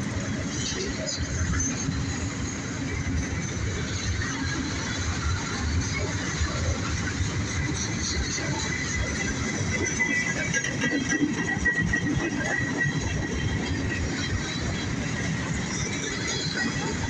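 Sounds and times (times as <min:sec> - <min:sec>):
train wheels rumbling on rails: 0:00.0 - 0:17.0
high wheel squeal: 0:00.1 - 0:06.4, 0:13.4 - 0:17.0.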